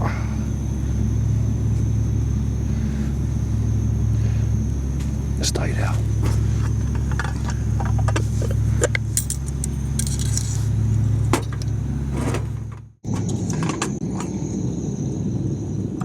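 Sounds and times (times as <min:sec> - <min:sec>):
steady low hum: 0:00.0 - 0:16.0
cooking gear clinking: 0:05.4 - 0:12.8.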